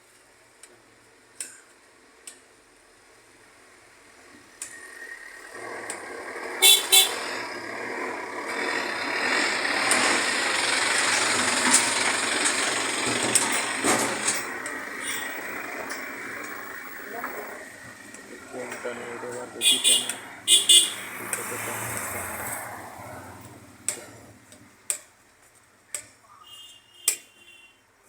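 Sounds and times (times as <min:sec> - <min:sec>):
vehicle passing close by: 0:05.5 - 0:14.6, 0:20.2 - 0:24.5
horn toots: 0:06.6 - 0:07.5, 0:19.6 - 0:21.2.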